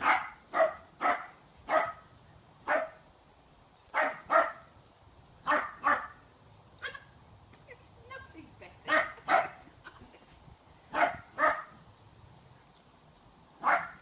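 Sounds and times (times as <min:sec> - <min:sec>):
dog barking: 0:00.0 - 0:02.0, 0:02.7 - 0:03.0, 0:04.0 - 0:04.7, 0:05.4 - 0:06.2, 0:06.8 - 0:07.1, 0:08.9 - 0:09.6, 0:10.9 - 0:11.8, 0:13.6 - 0:14.0.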